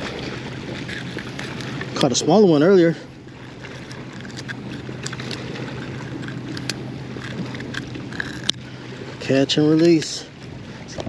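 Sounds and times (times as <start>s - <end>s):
low steady hum: 0.0s - 11.0s
water wash: 0.0s - 11.0s
wind: 0.0s - 11.0s.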